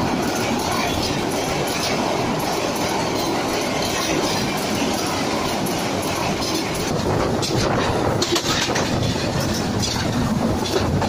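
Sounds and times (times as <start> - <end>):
train coaches rumbling: 0.0 - 11.0
wheels clattering over track: 3.2 - 11.0.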